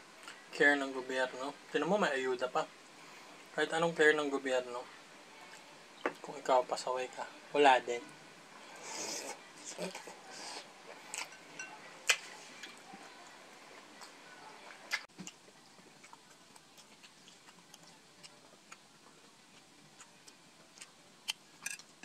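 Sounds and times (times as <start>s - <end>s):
person chewing food: 14.9s - 22.0s.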